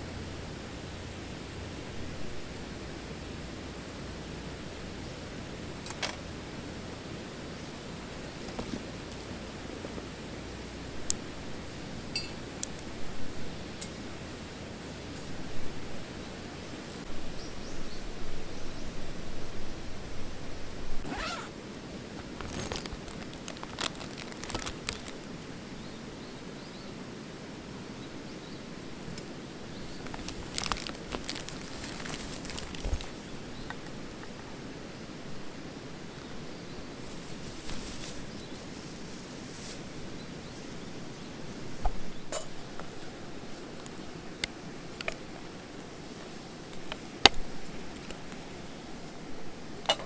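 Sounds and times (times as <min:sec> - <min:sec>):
outdoor background noise: 0:00.0 - 0:50.0
short rustles: 0:21.0 - 0:25.2, 0:29.8 - 0:33.4, 0:37.0 - 0:41.8.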